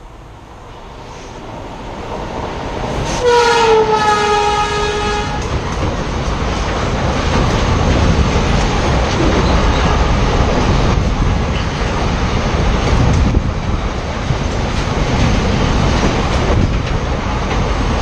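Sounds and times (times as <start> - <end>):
locomotive horn: 3.1 - 5.5.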